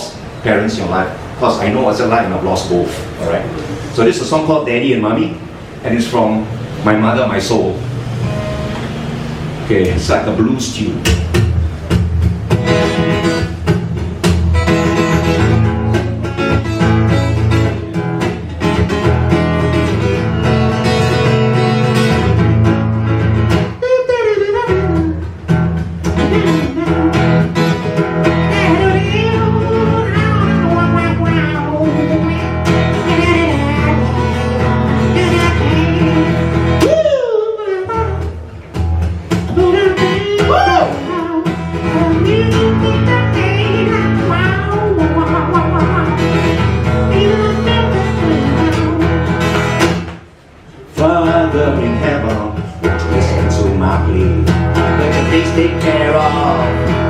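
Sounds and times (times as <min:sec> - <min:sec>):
acoustic guitar playing blues: 0:00.0 - 0:57.0.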